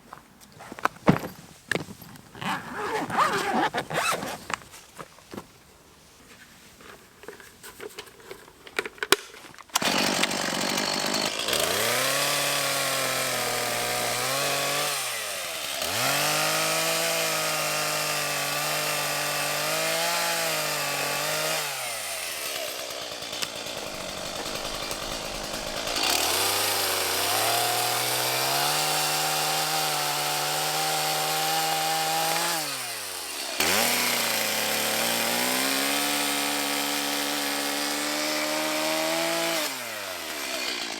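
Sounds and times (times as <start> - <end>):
chainsaw cutting wood: 9.8 - 40.9.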